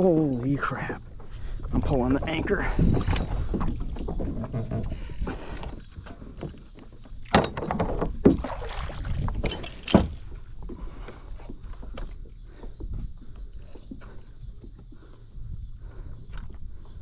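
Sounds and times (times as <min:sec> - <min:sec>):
rope and water rustling: 0:00.0 - 0:15.2
anchor knocking against hull: 0:02.4 - 0:05.4, 0:07.2 - 0:10.2.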